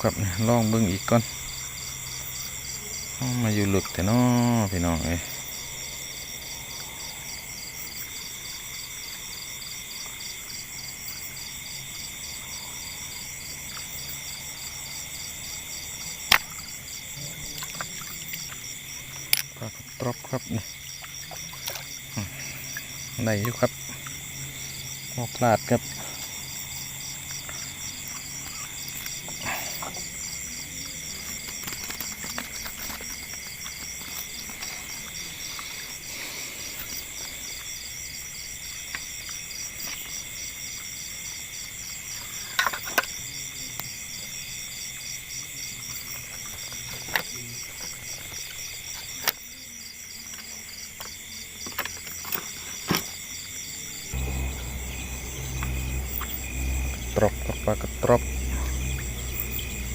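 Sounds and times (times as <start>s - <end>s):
crickets chirring: 0.0s - 59.9s
low rumble: 54.2s - 59.9s.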